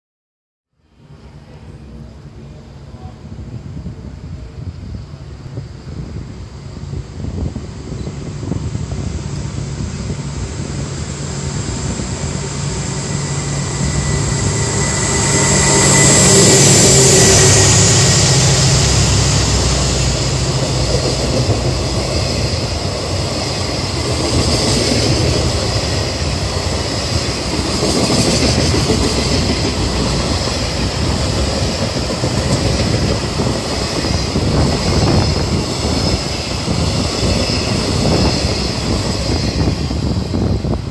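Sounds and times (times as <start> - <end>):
freight locomotive passing: 0.7 - 40.9.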